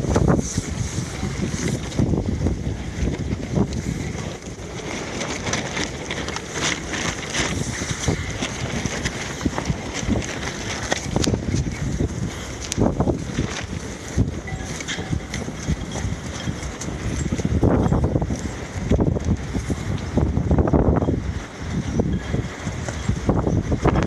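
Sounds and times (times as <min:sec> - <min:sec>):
wind buffeting microphone: 0:00.0 - 0:24.0
small clicks and rattles: 0:03.0 - 0:20.2.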